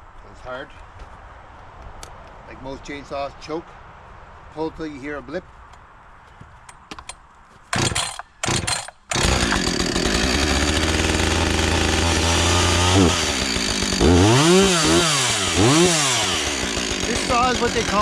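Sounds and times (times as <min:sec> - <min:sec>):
chainsaw pull-start: 0:07.7 - 0:18.0
chainsaw idling and revving: 0:07.8 - 0:18.0.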